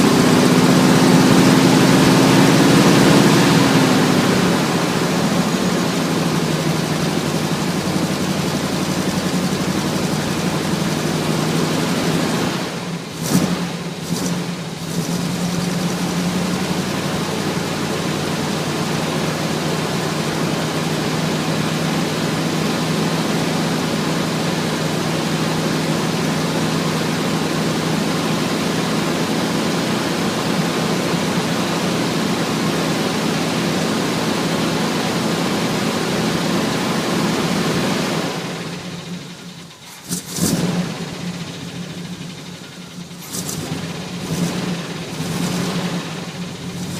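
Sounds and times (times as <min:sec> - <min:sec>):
car engine idling: 0:00.0 - 0:46.9.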